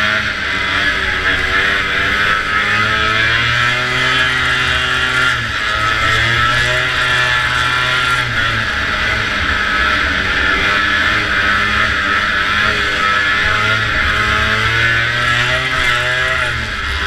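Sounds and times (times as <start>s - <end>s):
two-stroke snowmobile engine racing: 0.0s - 17.0s.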